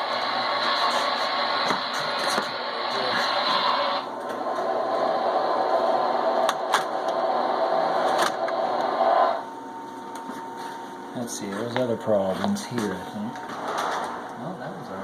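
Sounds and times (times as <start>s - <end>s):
model train whirring on track: 0.0s - 9.4s.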